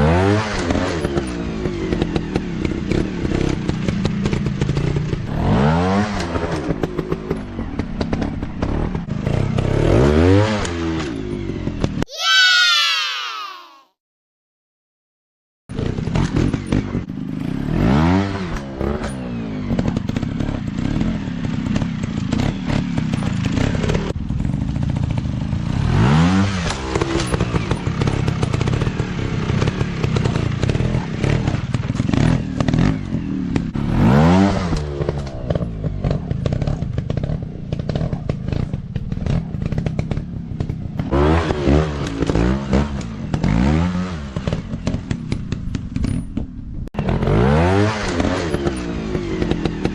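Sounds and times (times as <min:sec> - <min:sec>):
dirt bike engines revving: 0:25.6 - 0:46.0, 0:47.0 - 0:49.9
clatter and rattling: 0:26.7 - 0:33.8, 0:34.7 - 0:41.1, 0:44.4 - 0:46.6.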